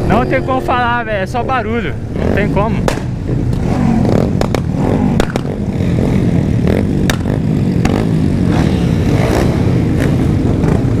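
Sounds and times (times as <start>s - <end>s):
motorcycle engines droning: 0.0s - 11.0s
exhaust pops: 2.8s - 3.7s, 4.3s - 5.6s, 7.0s - 8.0s.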